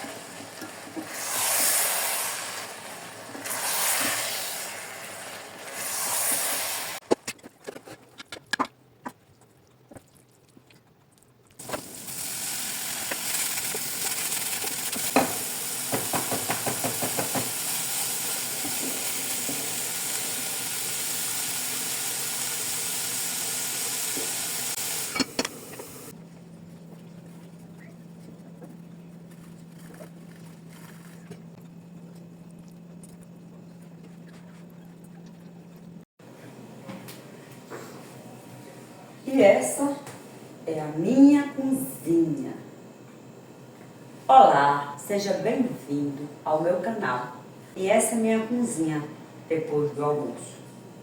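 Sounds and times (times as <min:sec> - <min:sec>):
meat sizzling in a frying pan: 0:11.7 - 0:25.2.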